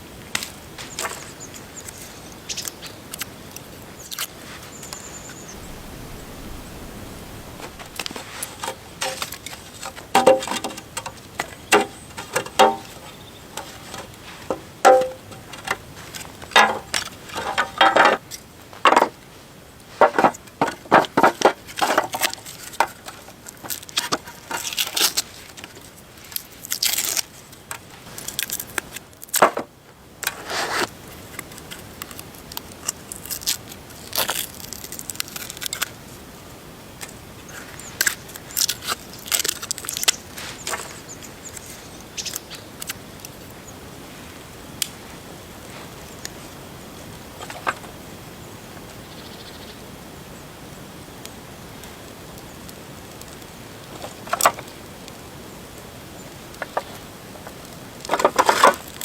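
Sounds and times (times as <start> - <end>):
crunching and crackling: 20.0 - 29.6, 30.2 - 36.2, 37.0 - 43.6, 56.5 - 59.0.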